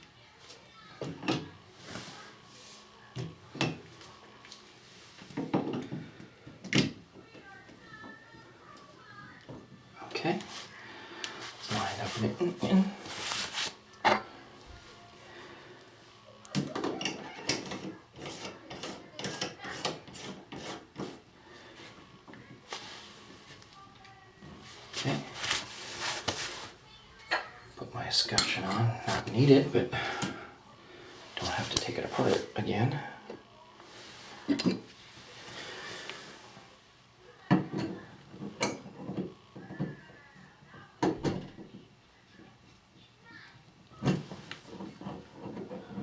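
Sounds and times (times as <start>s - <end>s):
scraping and rubbing strokes: 11.4s - 13.8s, 17.7s - 21.2s, 24.6s - 26.9s.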